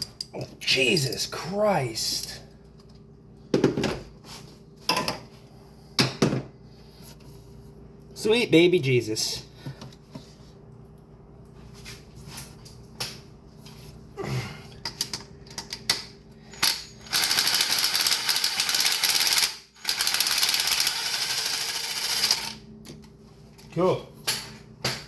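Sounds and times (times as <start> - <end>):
ratchet wrench clicking rapidly: 16.7 - 22.4.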